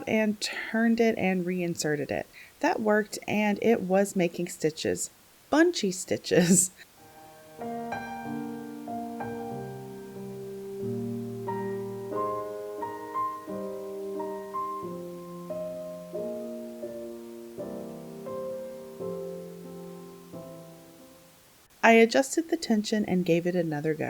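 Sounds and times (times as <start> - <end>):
gentle piano music: 7.0 - 21.4.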